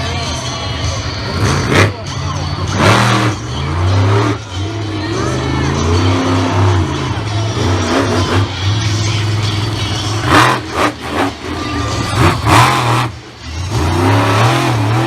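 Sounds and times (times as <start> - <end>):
monster truck engine revving: 0.2 - 15.0.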